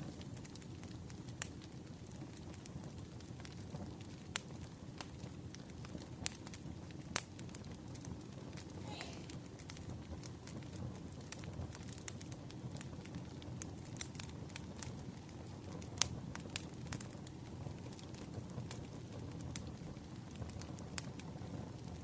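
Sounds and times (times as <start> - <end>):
fire crackling and popping: 0.0 - 22.0
firewood burning: 0.0 - 22.0.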